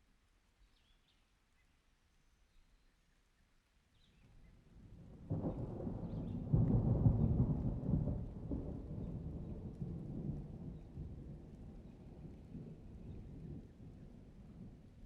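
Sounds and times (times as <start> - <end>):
thunder rumbling: 5.1 - 14.8.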